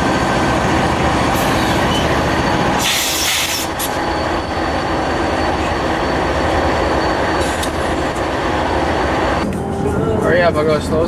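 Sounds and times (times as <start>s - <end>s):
freight train rumbling on track: 0.0s - 11.0s
high ringing: 3.6s - 10.2s.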